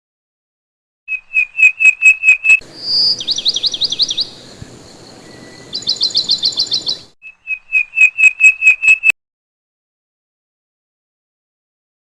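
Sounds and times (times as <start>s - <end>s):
bird trilling chirps: 1.1s - 9.1s
bird whistled notes: 1.1s - 9.2s.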